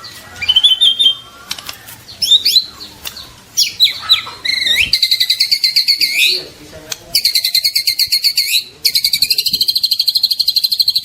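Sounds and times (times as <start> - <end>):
bird singing whistled phrases: 0.4 - 1.2, 3.6 - 6.4, 7.2 - 11.0
sharp clicks: 1.4 - 1.8.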